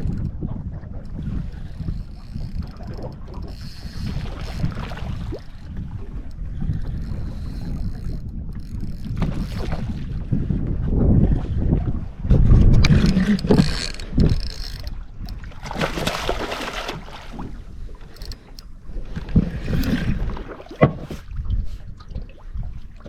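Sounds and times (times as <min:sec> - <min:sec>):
gusty wind buffeting microphone: 0:00.0 - 0:23.0.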